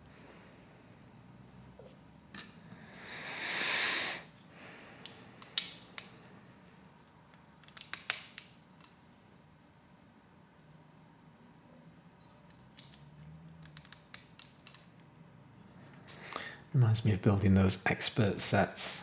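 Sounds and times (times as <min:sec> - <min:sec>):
plastic pieces clicking: 0:07.3 - 0:08.9, 0:12.5 - 0:15.0.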